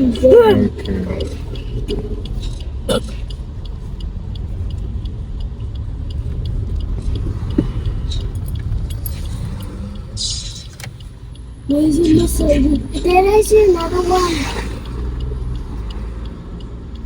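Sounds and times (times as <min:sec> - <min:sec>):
engine and road rumble: 0:00.0 - 0:17.0
light regular ticking: 0:00.0 - 0:17.0.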